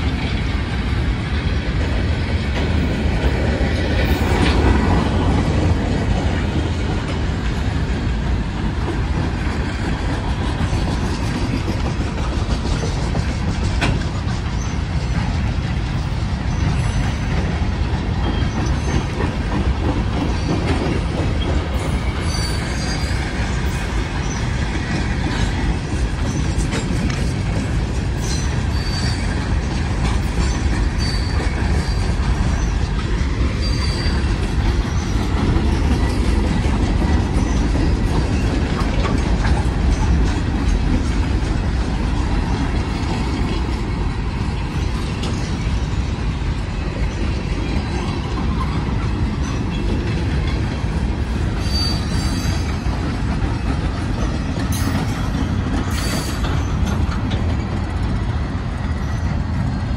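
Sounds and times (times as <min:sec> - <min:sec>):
train wheels rumbling on rails: 0:00.0 - 0:59.9
high wheel squeals: 0:21.8 - 0:24.6, 0:28.2 - 0:32.9, 0:33.5 - 0:36.4, 0:51.5 - 0:52.9, 0:54.7 - 0:57.0.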